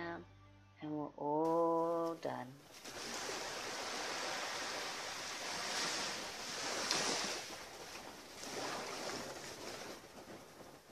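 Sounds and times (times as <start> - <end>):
surf washing onto beach: 2.7 - 10.9.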